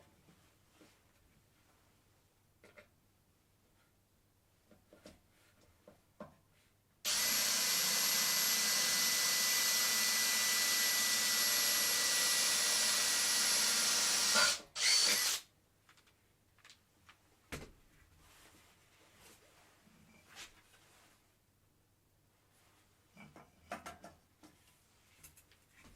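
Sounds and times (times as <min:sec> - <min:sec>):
power tool whining: 0:07.1 - 0:15.4.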